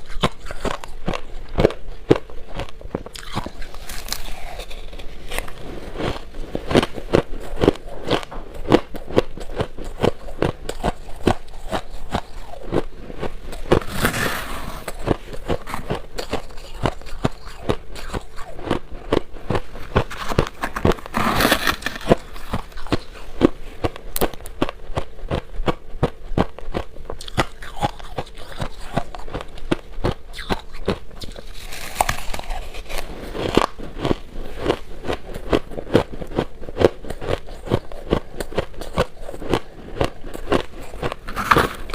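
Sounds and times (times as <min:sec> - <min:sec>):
shaved ice crunching: 0:31.4 - 0:33.6.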